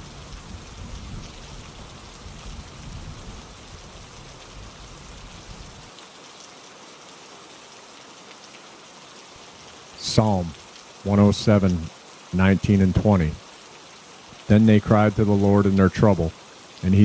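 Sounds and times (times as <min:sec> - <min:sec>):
steady rainfall: 0:00.0 - 0:17.0.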